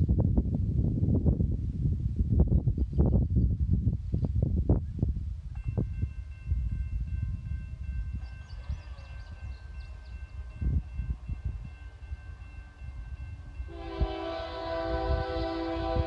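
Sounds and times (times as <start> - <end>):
locomotive air horn: 13.7 - 16.0.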